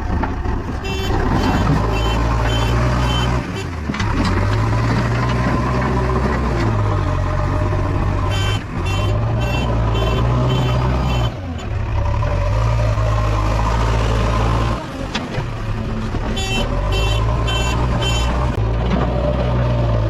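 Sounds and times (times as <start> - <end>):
diesel engine running under load: 0.0 - 20.0.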